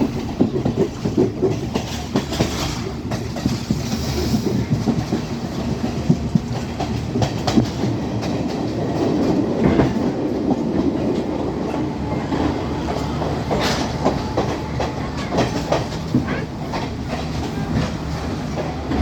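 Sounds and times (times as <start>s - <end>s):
wheels clicking over rail joints: 0.0s - 11.8s
train rumble: 0.0s - 19.0s.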